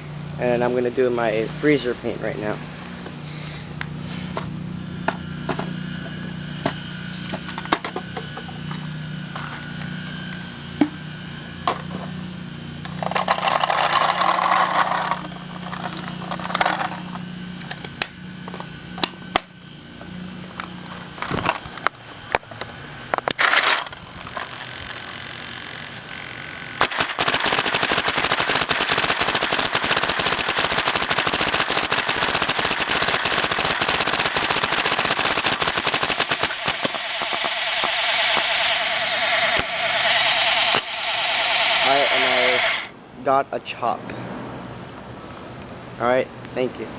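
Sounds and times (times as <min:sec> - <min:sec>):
clicks and handling noise: 0:12.9 - 0:19.1, 0:20.6 - 0:25.1
short bursts of noise: 0:23.2 - 0:43.0
paintball marker firing rapidly: 0:26.8 - 0:42.9.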